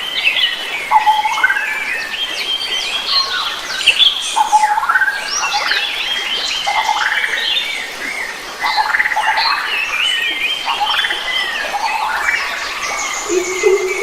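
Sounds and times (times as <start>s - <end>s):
birds singing: 0.0s - 14.0s
lower repeated bird call: 11.8s - 14.0s.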